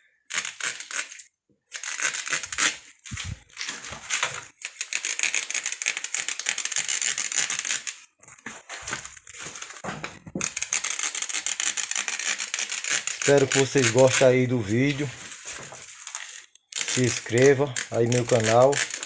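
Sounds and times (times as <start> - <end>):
knife cutting rubber tyre: 10.4 - 14.5, 16.7 - 19.0.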